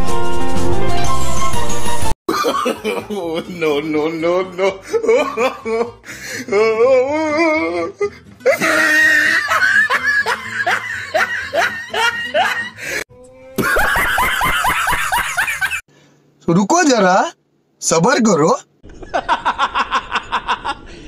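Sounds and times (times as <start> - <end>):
background music: 0.0 - 15.7
hearty laughter: 4.6 - 6.0, 8.4 - 13.0, 13.6 - 15.8, 18.9 - 21.0.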